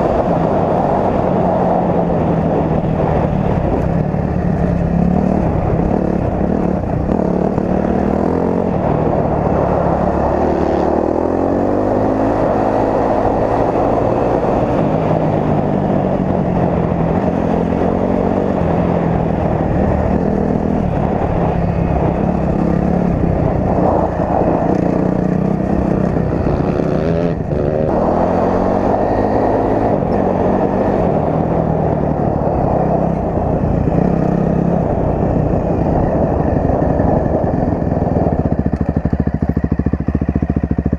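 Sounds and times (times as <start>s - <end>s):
dirt bike engine revving: 4.8s - 31.5s.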